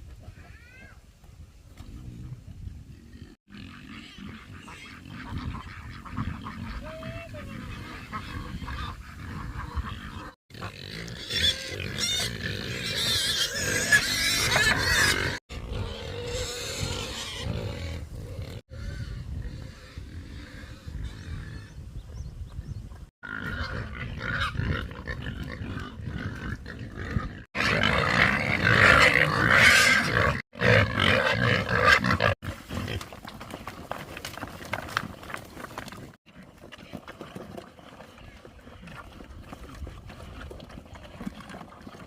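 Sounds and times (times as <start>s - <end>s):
farm animals calling: 2.9s - 33.5s.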